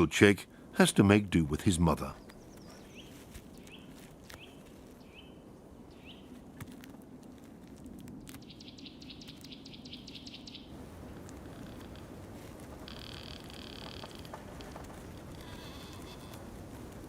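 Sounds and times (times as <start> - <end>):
bird chirping: 2.1 - 6.3, 8.2 - 10.8.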